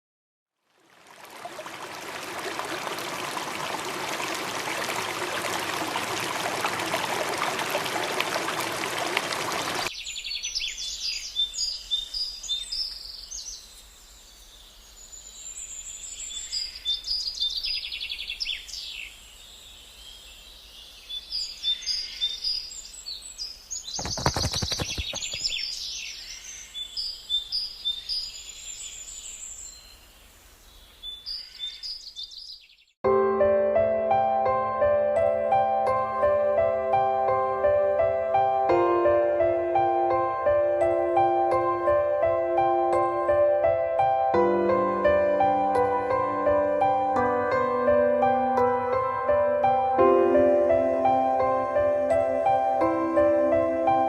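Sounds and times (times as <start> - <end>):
water rushing: 0.6 - 9.9
birds chirping: 23.5 - 32.9.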